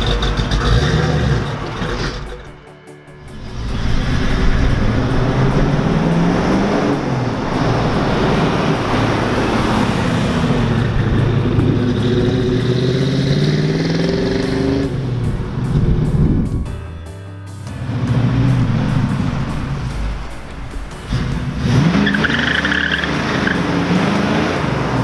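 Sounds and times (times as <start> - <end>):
car engine driving past: 3.2 - 16.8.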